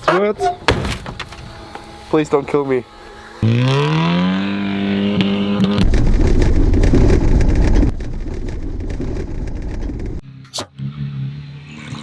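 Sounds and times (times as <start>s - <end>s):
car engine revving: 1.2s - 6.4s.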